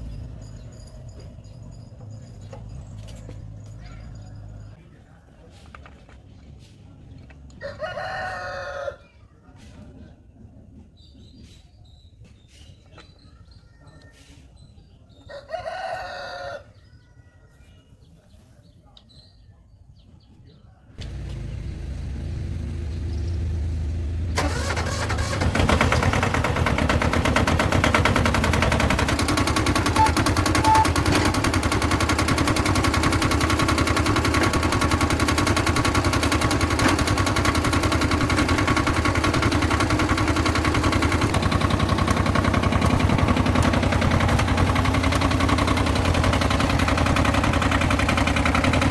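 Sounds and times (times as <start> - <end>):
tractor engine starting and running: 0.0 - 4.8, 21.0 - 48.9
rooster crowing: 7.6 - 9.1, 15.3 - 16.7.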